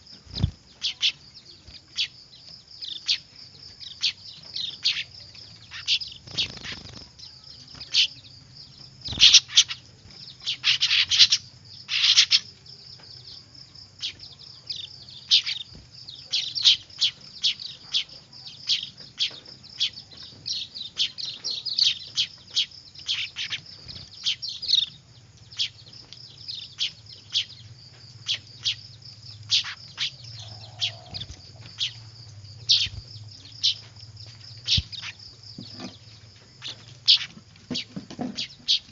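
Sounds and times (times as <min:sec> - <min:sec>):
bird chicks chirping: 0:00.0 - 0:38.9.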